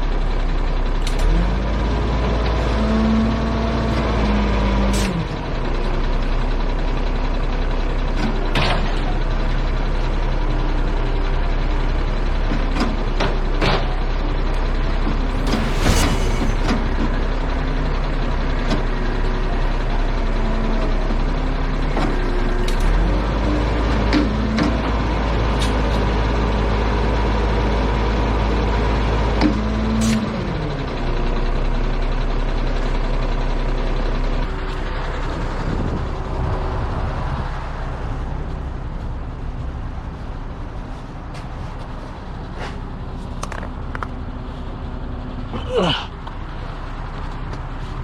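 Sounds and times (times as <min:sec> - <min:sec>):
air brakes hissing: 0:15.3 - 0:16.8.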